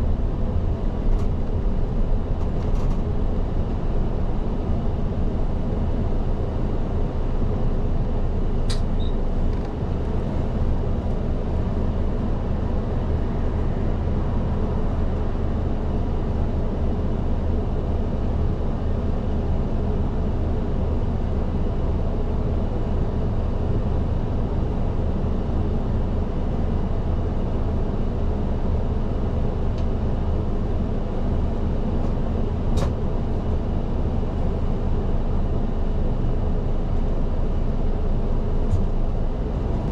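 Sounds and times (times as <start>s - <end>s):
road and tyre noise: 0.0s - 18.6s, 28.9s - 39.9s
bus engine running: 0.0s - 39.9s
sharp click: 8.7s - 8.9s.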